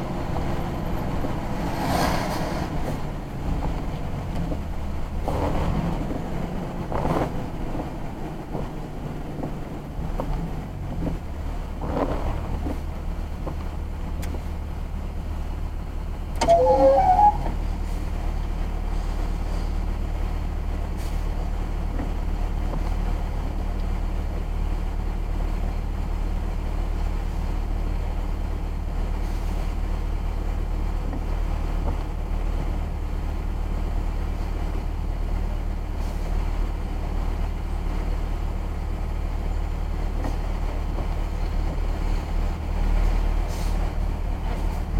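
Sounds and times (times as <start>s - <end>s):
car engine and road drone: 0.0s - 44.9s
short pitched sound: 16.4s - 17.6s.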